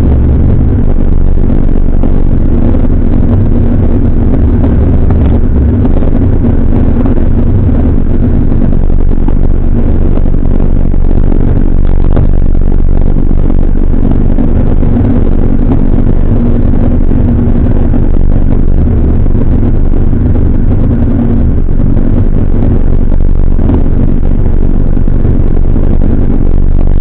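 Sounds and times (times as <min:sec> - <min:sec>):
car engine running: 0:00.0 - 0:27.0
low rumble of moving car: 0:00.0 - 0:27.0.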